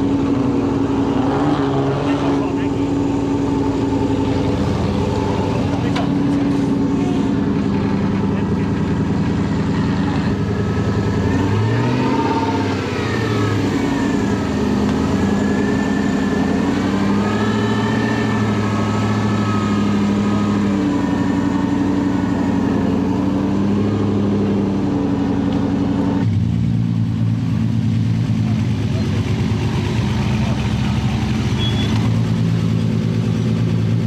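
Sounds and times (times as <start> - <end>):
off-road vehicle engine revving: 0.0 - 34.0
off-road vehicle engine running: 0.0 - 34.0.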